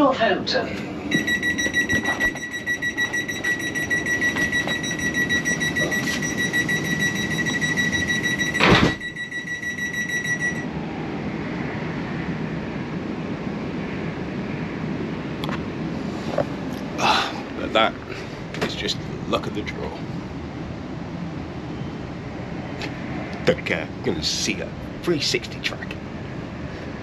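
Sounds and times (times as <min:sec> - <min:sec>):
low train rumble: 0:00.0 - 0:27.0
train door warning tone: 0:01.1 - 0:10.7
train doors closing thud: 0:01.2 - 0:06.7, 0:07.3 - 0:09.2.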